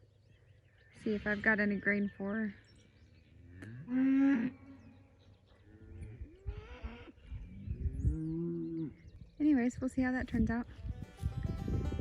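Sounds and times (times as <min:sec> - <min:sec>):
cow mooing: 0:03.5 - 0:05.0.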